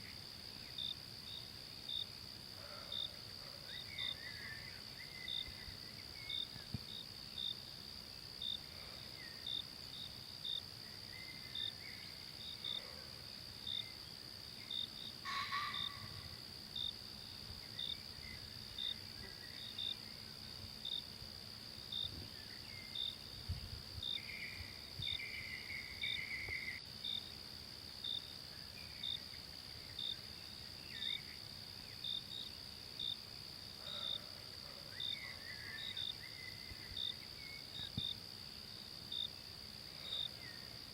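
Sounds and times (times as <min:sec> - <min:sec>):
cricket-like chirp: 0:00.0 - 0:40.9
insects droning: 0:00.0 - 0:40.9.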